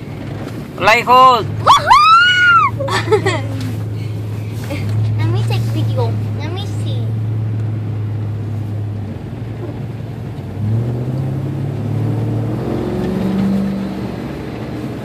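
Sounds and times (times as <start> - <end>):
vehicle engine accelerating: 0.0 - 15.0.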